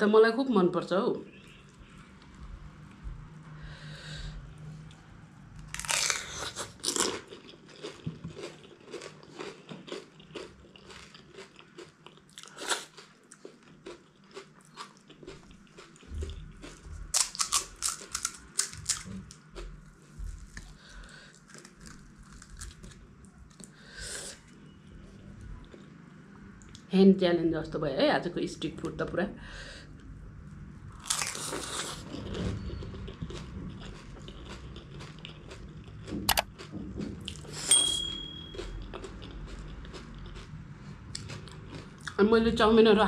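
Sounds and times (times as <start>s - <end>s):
crunching and chewing crisp shells: 5.6s - 24.7s, 30.9s - 37.7s, 38.5s - 42.2s.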